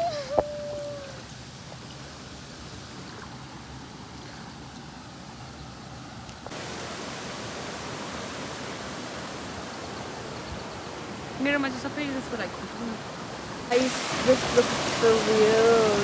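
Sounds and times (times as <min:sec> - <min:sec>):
waterfall rushing: 0:06.5 - 0:16.0.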